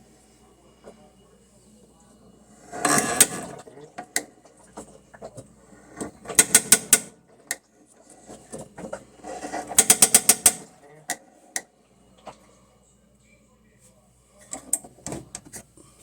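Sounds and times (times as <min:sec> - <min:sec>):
rapid mechanical clicking: 0:06.0 - 0:07.7, 0:09.6 - 0:10.7.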